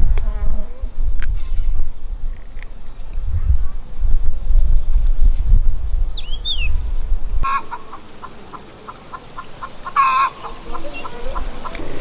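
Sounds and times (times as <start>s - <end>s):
chickens clucking: 7.4s - 12.0s.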